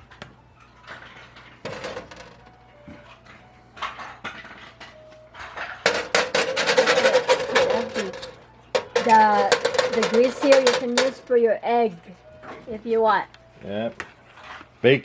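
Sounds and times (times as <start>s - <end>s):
scraping and crackling: 0.7s - 11.9s
utensils clinking on metal baking sheet: 0.9s - 2.6s, 3.8s - 12.0s.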